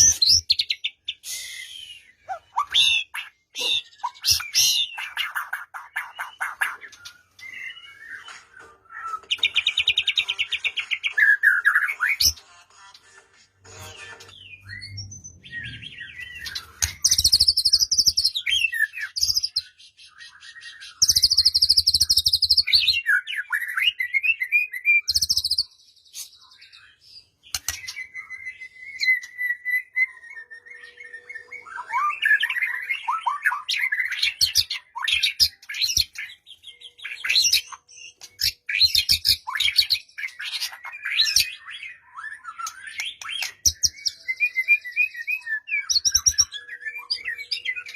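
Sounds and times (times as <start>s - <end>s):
bird singing whistled notes: 14.2s - 47.9s.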